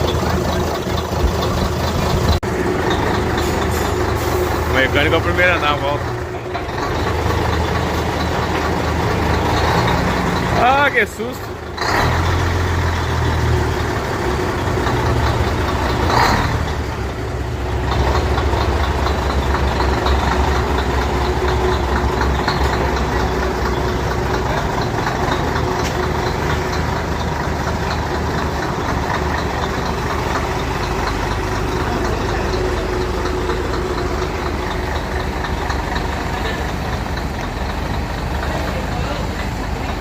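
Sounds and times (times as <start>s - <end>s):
truck diesel engine droning: 0.0s - 40.0s.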